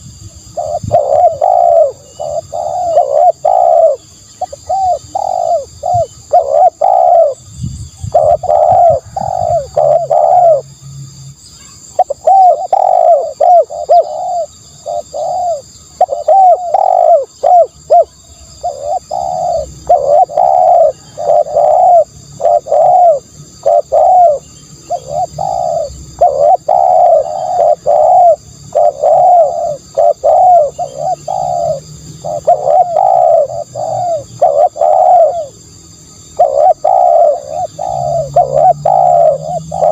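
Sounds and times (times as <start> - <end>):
doves cooing: 0.0 - 7.4, 8.0 - 10.7, 11.9 - 39.9.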